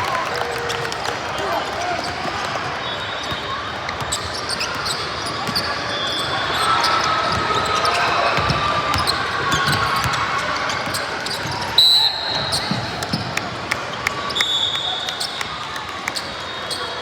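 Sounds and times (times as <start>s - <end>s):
shoe squeaks: 2.8s - 12.9s
basketball bouncing on court: 3.2s - 5.8s, 7.3s - 11.7s, 12.3s - 13.6s.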